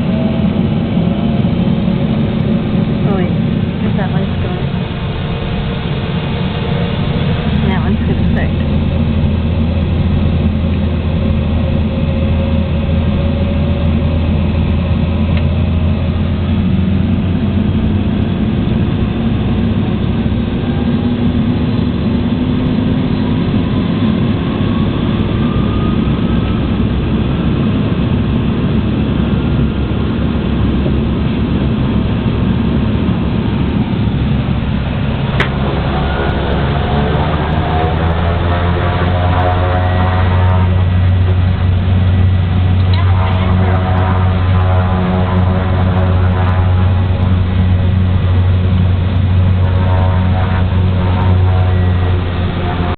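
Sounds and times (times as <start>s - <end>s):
propeller aircraft engines droning: 0.0s - 52.9s
faint rising tone: 33.6s - 52.9s.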